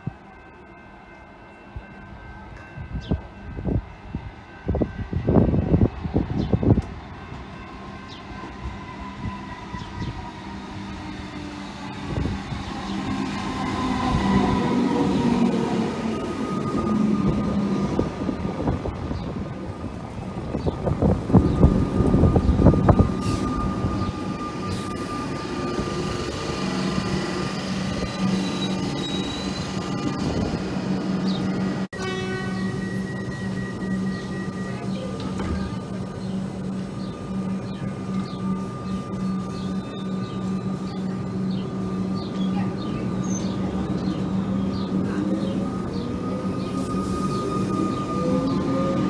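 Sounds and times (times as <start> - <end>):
train rumble with thin whine: 0.0 - 49.0
train wheels clattering on rails: 34.7 - 36.8.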